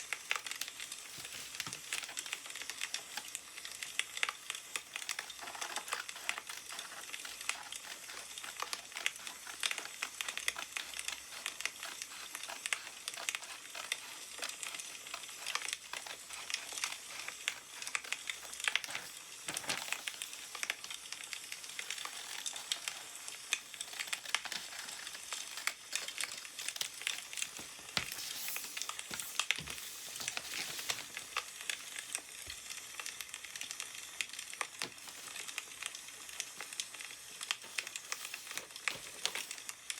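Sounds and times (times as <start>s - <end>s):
paper rustling: 1.0s - 2.3s, 17.8s - 20.3s, 23.8s - 32.1s, 37.6s - 39.6s.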